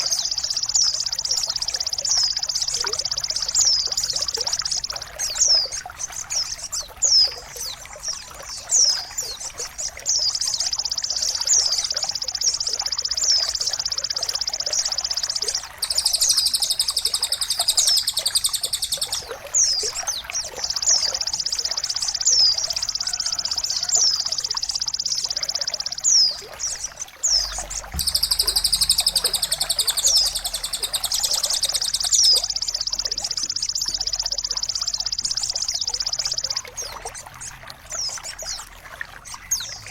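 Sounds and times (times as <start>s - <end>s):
high falling bird whistles: 15.8s - 19.4s, 27.3s - 35.2s
high-pitched rushing sound: 27.4s - 32.5s.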